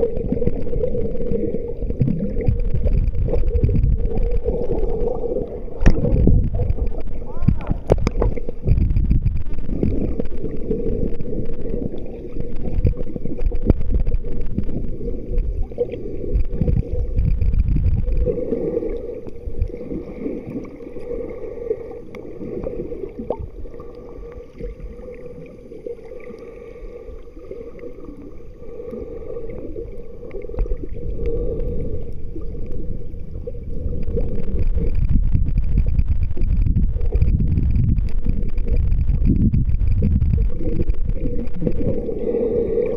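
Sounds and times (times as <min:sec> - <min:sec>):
faint steady hum: 0:00.0 - 0:42.9
wind on microphone: 0:02.5 - 0:04.8, 0:05.7 - 0:10.0, 0:16.3 - 0:18.3, 0:33.9 - 0:42.0.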